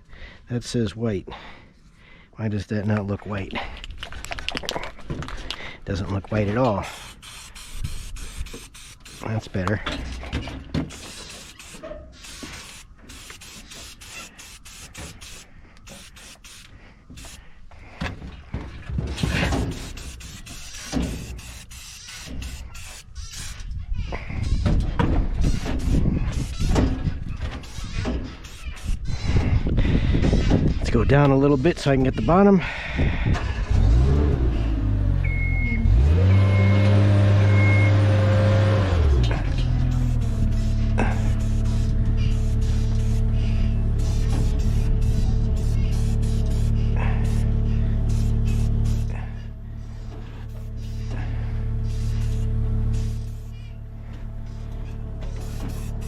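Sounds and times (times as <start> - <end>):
aerosol spray can hissing: 6.9 - 9.3, 10.9 - 17.4, 19.6 - 23.4, 39.9 - 47.5, 48.1 - 49.1, 51.8 - 53.6, 55.4 - 56.0
low rumbling: 32.6 - 56.0
lift motion alarm beeps: 35.2 - 38.1.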